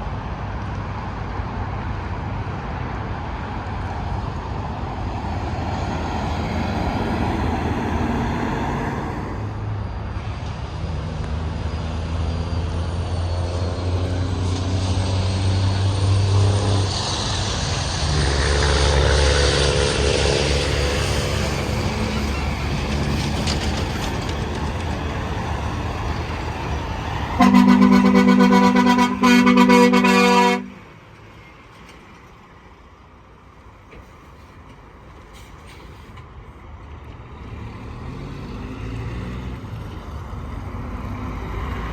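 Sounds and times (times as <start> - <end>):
trucks passing on highway: 0.0 - 41.9
truck air horn blasts: 27.3 - 30.9.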